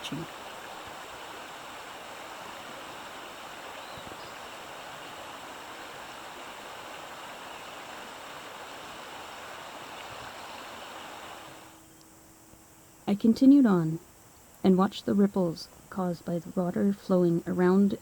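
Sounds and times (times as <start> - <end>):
creek water flowing over rocks: 0.0 - 11.7.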